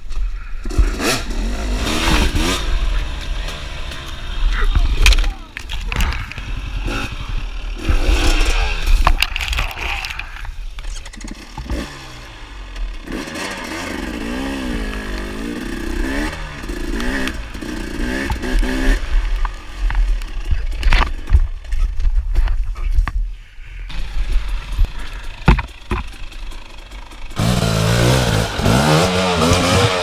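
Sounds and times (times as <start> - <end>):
low rumble: 0.0 - 13.1
dirt bike engine revving: 0.6 - 21.8, 23.9 - 30.0.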